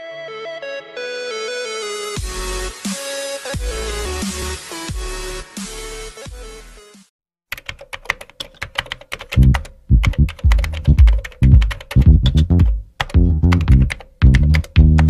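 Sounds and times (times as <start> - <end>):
keyboard typing clicks: 7.5 - 15.0
plucked bass guitar music: 9.4 - 15.0.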